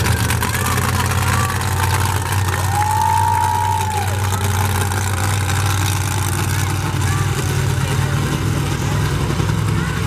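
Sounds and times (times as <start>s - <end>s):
monster truck engine running: 0.0s - 10.0s.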